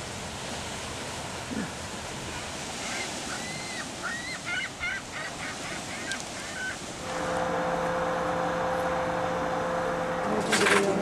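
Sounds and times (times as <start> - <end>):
machine hum: 7.0 - 11.0.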